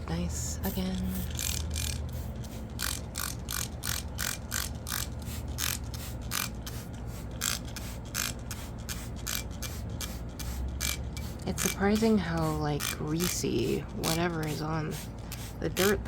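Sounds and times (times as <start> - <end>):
scrub brush scrubbing: 11.6 - 14.9.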